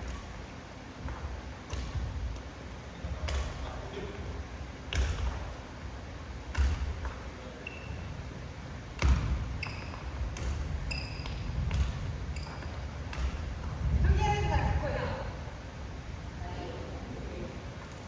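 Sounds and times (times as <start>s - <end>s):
court shoes squeaking: 2.8s - 4.3s, 6.4s - 13.9s.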